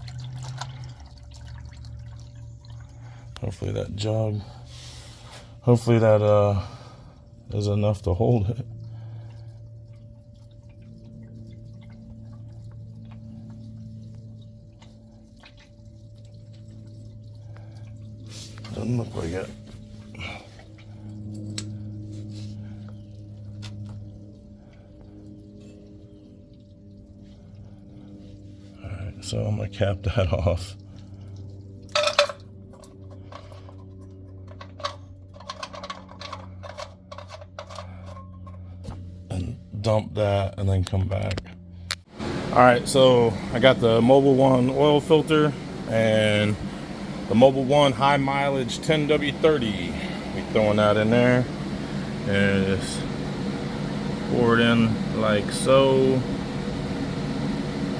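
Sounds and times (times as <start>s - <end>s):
faint drips and ticks: 0.0s - 3.8s, 5.8s - 28.6s, 29.7s - 37.7s
oil draining into jug: 0.0s - 22.0s, 22.6s - 38.8s
steady low hum: 0.0s - 57.9s.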